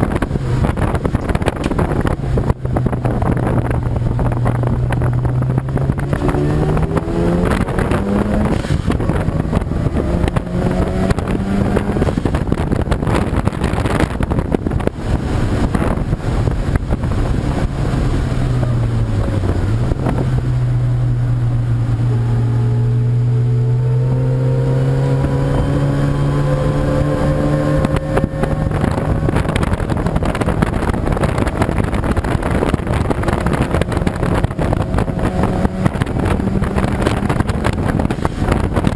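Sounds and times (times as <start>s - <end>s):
race car engine revving: 0.0s - 38.9s
wind on microphone: 0.0s - 38.9s.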